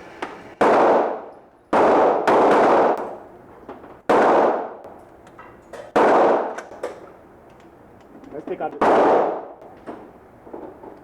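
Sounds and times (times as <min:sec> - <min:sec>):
gunshots: 0:00.6 - 0:03.2, 0:04.1 - 0:04.8, 0:05.9 - 0:06.6, 0:08.8 - 0:09.6.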